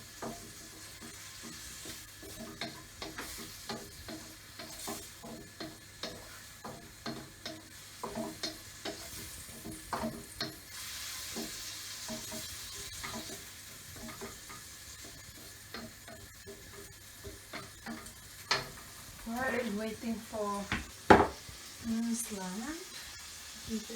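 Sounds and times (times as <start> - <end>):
utensil scraping and clacking on pan: 0.0 - 21.5
food sizzling in frying pan: 0.0 - 23.9.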